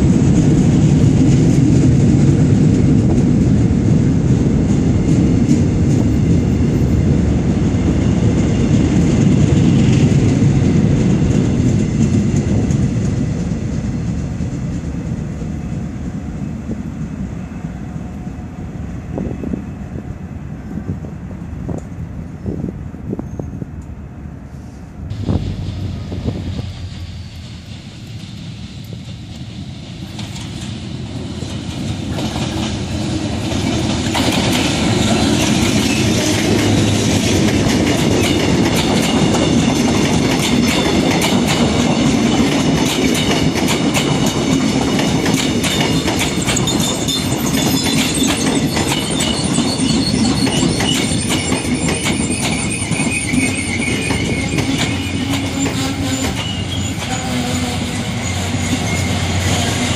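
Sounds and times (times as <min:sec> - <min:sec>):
rail joint clickety-clack: 0:00.0 - 0:59.9
train wheel rumble: 0:00.0 - 0:59.9
high wheel squeal: 0:34.7 - 0:37.1, 0:45.7 - 0:59.9.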